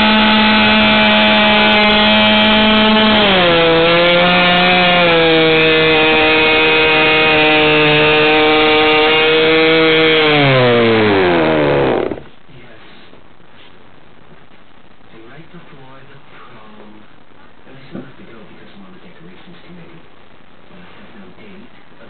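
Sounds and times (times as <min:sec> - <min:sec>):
model airplane engine running: 0:00.0 - 0:12.2.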